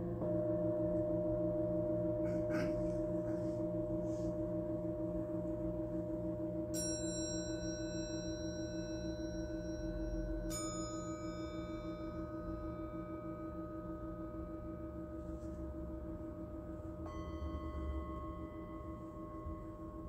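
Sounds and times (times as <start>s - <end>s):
singing bowls ringing: 0.0s - 20.0s.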